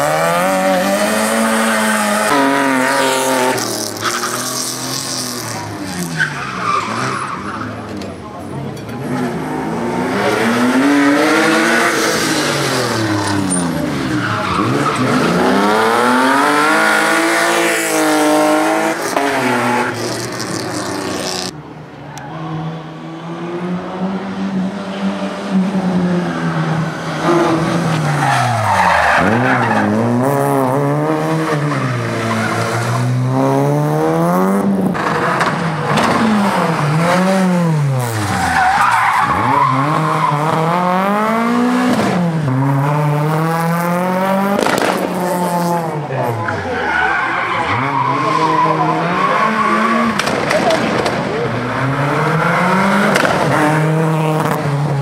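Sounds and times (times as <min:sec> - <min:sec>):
tyres squealing and skidding: 0:00.6 - 0:08.5, 0:10.8 - 0:22.6, 0:26.3 - 0:33.3, 0:35.0 - 0:41.1, 0:46.0 - 0:54.0
car engine revving: 0:08.9 - 0:21.6, 0:22.4 - 0:55.0.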